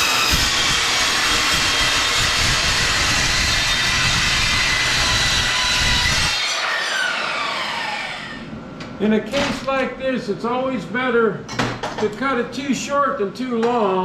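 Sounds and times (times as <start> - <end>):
angle grinder cutting steel: 0.0 - 8.4.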